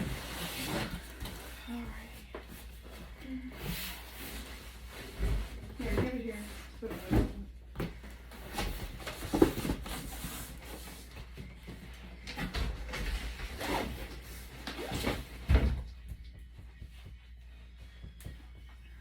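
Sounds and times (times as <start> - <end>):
cardboard box rustling and scraping: 0.0 - 1.9, 8.3 - 11.1.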